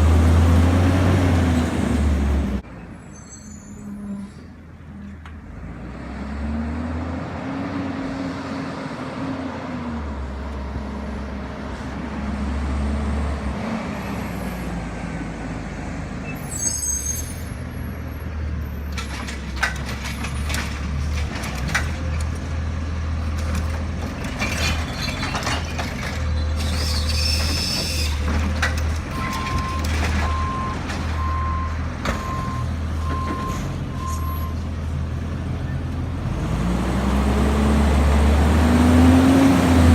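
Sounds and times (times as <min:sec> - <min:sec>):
brief high squeal: 0:03.0 - 0:04.6, 0:16.2 - 0:17.6, 0:26.5 - 0:28.2.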